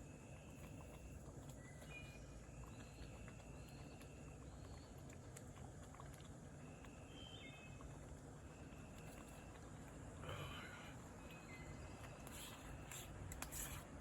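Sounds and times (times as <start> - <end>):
thin whistled bird calls: 6.9 - 7.8, 11.2 - 13.0.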